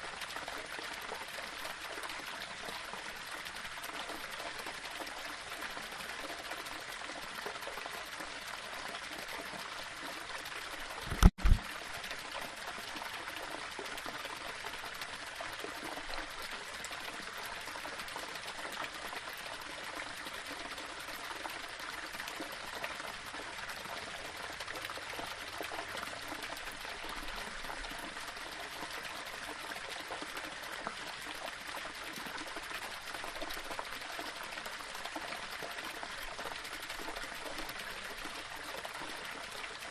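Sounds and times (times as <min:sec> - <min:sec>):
water splashing over rocks: 0:11.0 - 0:11.9
loud low double thump: 0:11.1 - 0:11.6.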